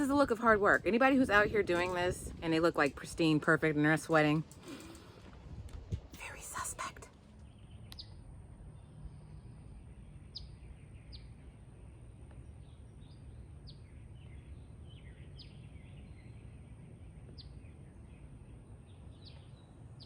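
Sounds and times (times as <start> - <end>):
faint low rumble: 0.0 - 20.0
birds chirping: 6.2 - 20.0.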